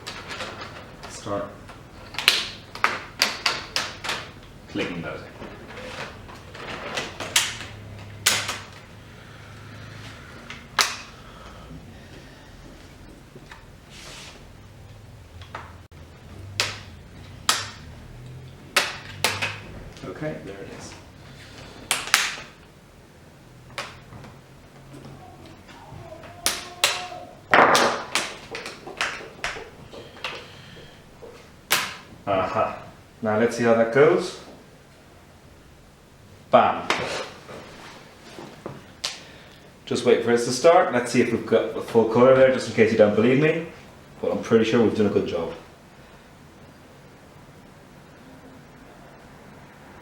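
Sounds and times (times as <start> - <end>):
plastic clips snapping into place: 7.2 - 8.8, 10.5 - 11.2, 16.5 - 17.9, 18.7 - 19.6, 21.9 - 22.5.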